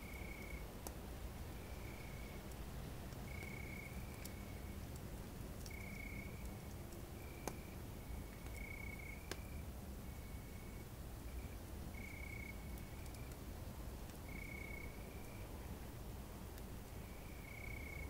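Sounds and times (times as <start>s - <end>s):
campfire crackling pops: 1.8s - 9.6s, 11.4s - 15.4s
crickets trilling: 3.3s - 4.7s.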